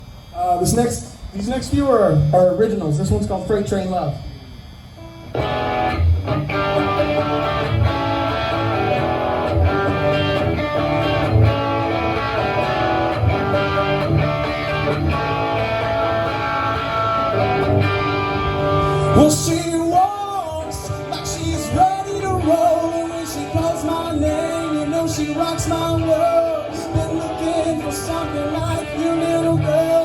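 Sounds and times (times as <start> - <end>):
strummed guitar: 5.0 - 30.0
low bass notes: 5.3 - 19.8.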